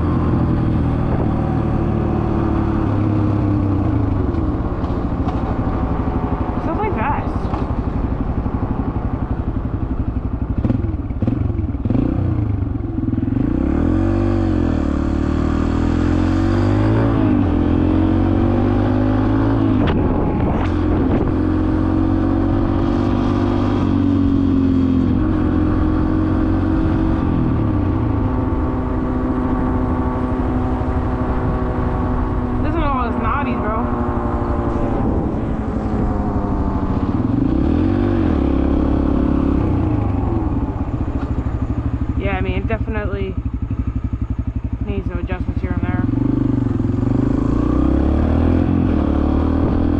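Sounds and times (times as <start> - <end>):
dirt bike engine revving: 28.2 - 49.9.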